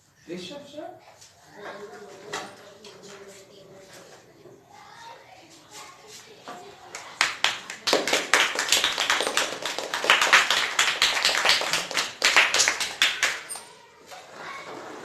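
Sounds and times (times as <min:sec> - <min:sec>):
small group clapping: 0:06.2 - 0:13.8.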